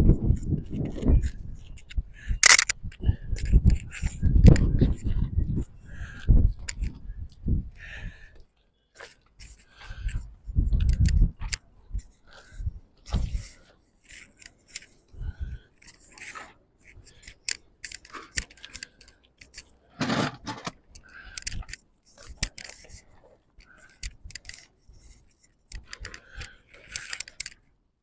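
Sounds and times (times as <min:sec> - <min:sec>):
clicks and scrapes of hand work: 0:00.8 - 0:02.8, 0:13.0 - 0:15.1, 0:15.8 - 0:27.7.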